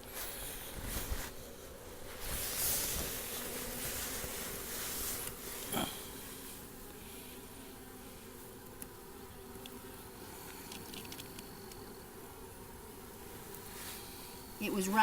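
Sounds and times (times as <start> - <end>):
bees buzzing: 0.0 - 15.0
faint clicks: 10.4 - 11.8.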